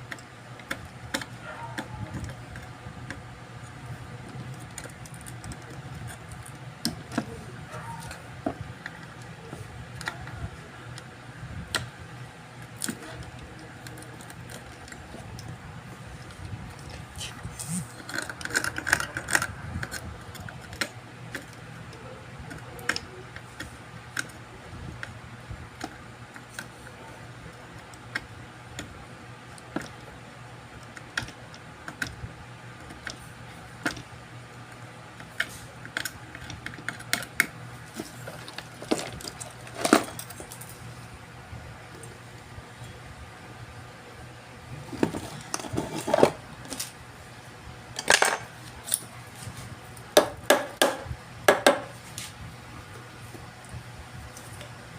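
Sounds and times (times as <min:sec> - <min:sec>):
low steady hum: 0:00.0 - 0:54.9
tools clattering: 0:48.0 - 0:49.0.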